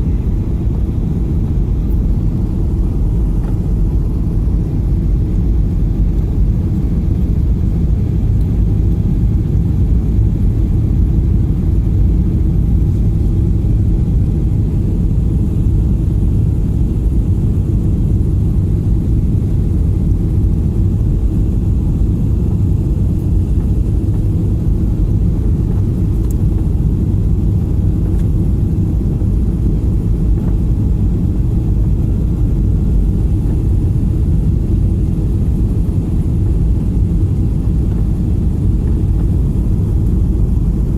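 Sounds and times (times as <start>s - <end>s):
airliner engine rumble in cabin: 0.0s - 40.9s.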